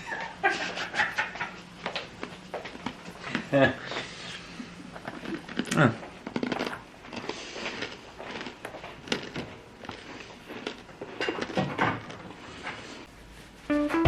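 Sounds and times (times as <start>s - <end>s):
rustling of food containers: 2.2s - 13.2s.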